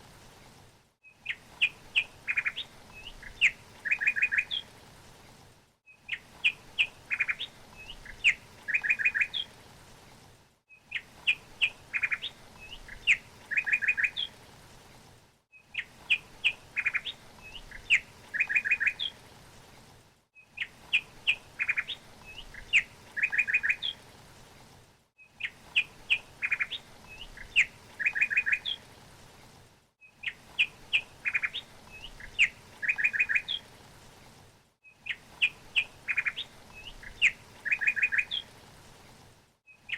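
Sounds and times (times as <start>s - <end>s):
songbird chirping and trilling: 1.1s - 4.7s, 5.9s - 9.5s, 10.8s - 14.3s, 15.6s - 19.2s, 20.4s - 24.0s, 25.4s - 28.8s, 30.1s - 33.6s, 35.0s - 38.5s.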